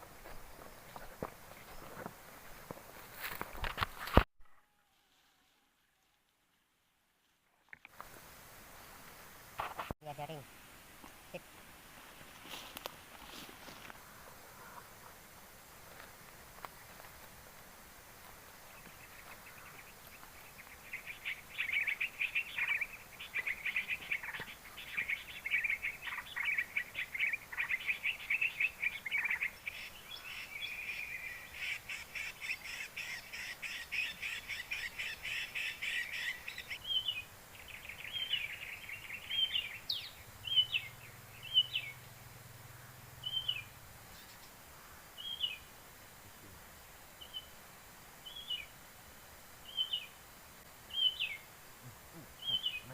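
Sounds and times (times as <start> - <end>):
bird chirping: 18.7 - 42.1, 43.2 - 45.7, 47.2 - 47.6, 48.2 - 48.7, 49.6 - 50.2, 50.9 - 51.5, 52.1 - 52.9
bird singing fast trills: 20.5 - 42.0, 43.2 - 44.5, 50.9 - 51.4, 52.4 - 52.9.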